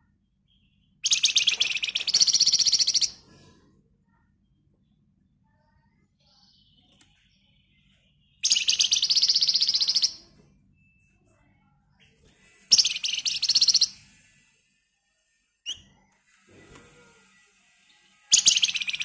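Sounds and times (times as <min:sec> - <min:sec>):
faint bird chirps: 0:00.0 - 0:16.2, 0:17.0 - 0:19.0
songbird rattling trills: 0:01.0 - 0:03.1, 0:08.4 - 0:10.2, 0:12.7 - 0:14.0, 0:18.3 - 0:19.0.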